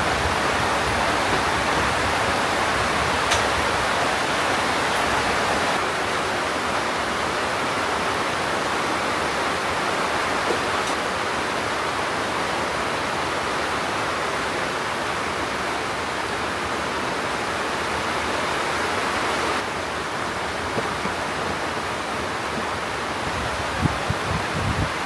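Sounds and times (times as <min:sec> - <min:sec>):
rushing water: 0:00.0 - 0:25.0.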